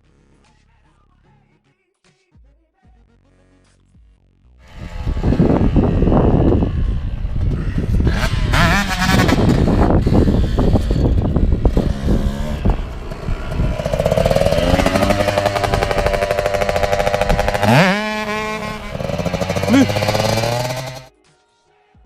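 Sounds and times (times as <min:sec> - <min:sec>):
dirt bike engine revving: 0:04.7 - 0:21.1.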